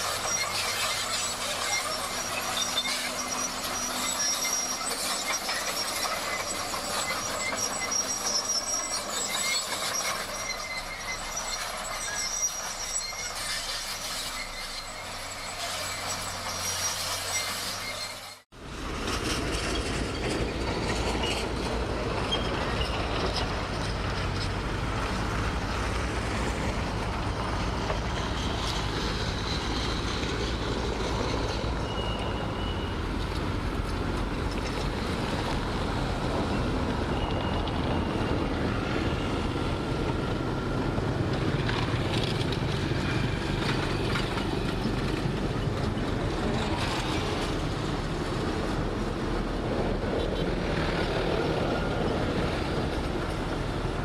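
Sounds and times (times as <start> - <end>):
high squeals: 0.0 - 18.5, 25.0 - 33.4
heavy machinery diesel engines: 0.0 - 54.0.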